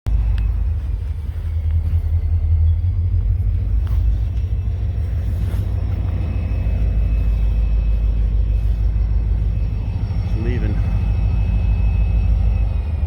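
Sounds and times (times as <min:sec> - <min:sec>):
train passing with low rumble: 0:00.0 - 0:13.0.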